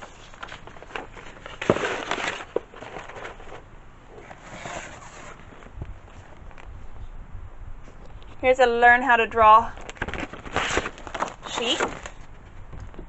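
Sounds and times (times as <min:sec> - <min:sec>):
paper rustling: 0:00.0 - 0:06.7, 0:09.8 - 0:12.6.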